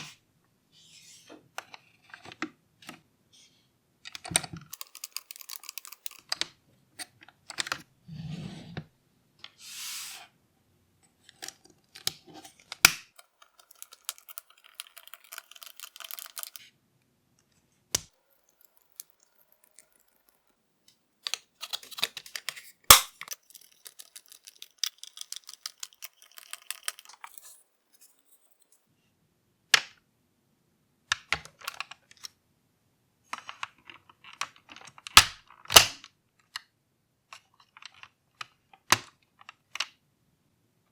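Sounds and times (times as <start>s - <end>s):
plastic parts clicking: 4.1s - 7.8s, 11.2s - 16.7s, 21.2s - 28.2s.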